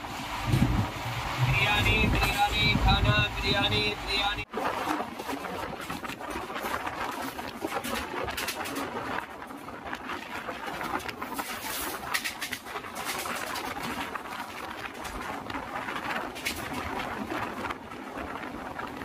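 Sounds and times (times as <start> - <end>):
passing train rushing: 0.0 - 4.5.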